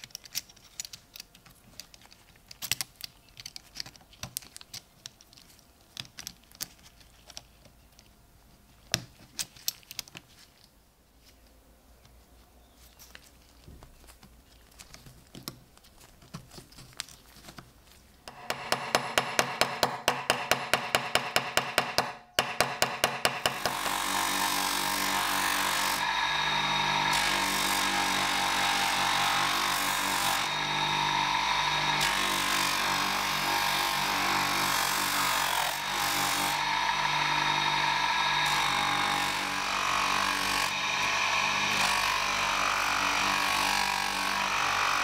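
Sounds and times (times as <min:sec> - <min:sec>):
power tool running: 0:18.3 - 0:45.0.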